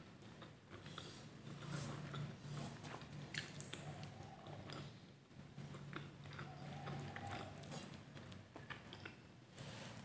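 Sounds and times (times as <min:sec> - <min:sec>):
person chewing food: 0:00.0 - 0:10.0.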